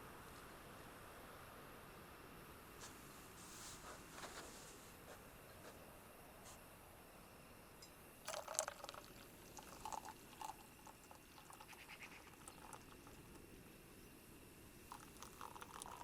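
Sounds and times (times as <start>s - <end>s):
small liquid splashes and drips: 8.3s - 13.4s, 14.9s - 16.0s.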